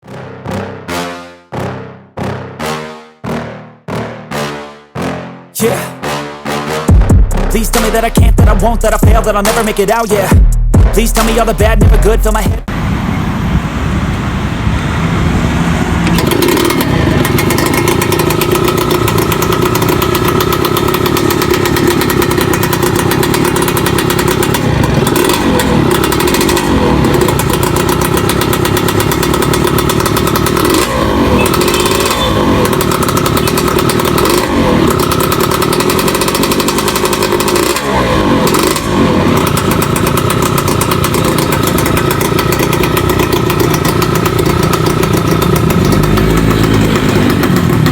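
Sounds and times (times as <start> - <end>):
two-stroke engine idling: 7.9 - 10.4, 14.7 - 47.9
engine throttle blips: 11.1 - 47.9.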